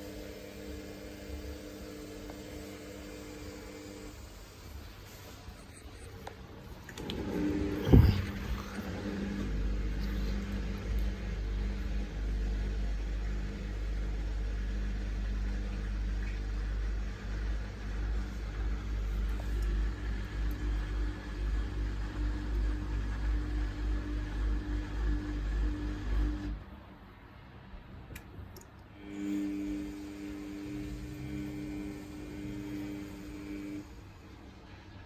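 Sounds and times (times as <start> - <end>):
washing machine drum motor hum: 0.0 - 26.6, 29.2 - 35.0
washing machine knock: 7.0 - 9.4.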